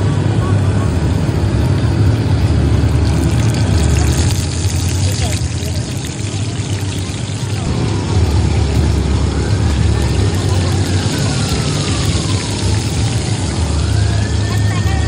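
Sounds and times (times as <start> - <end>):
oil sizzling on griddle: 2.9 - 7.8, 9.4 - 15.0
siren wailing: 8.9 - 15.0.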